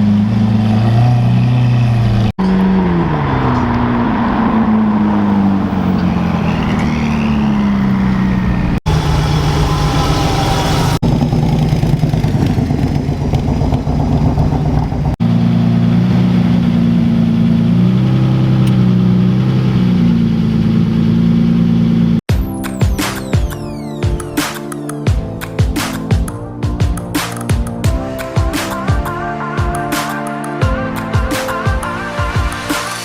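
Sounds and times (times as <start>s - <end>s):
car engine revving: 0.0s - 22.3s.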